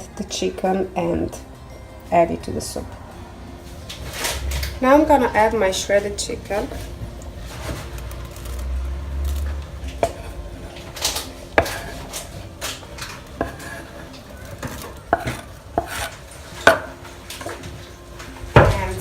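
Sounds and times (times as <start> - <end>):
utensil clinking against dishes: 9.9 - 18.9.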